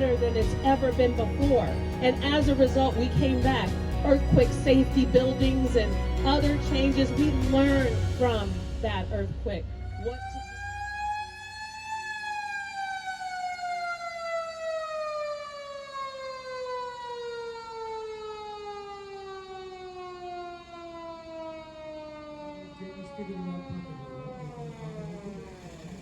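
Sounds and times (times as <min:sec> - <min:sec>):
mechanical siren winding down: 0:09.6 - 0:26.0.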